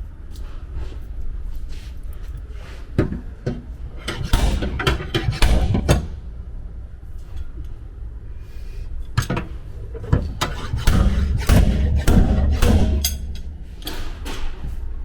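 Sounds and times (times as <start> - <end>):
hammer striking sheet steel panel: 4.1 - 6.4, 10.4 - 14.5.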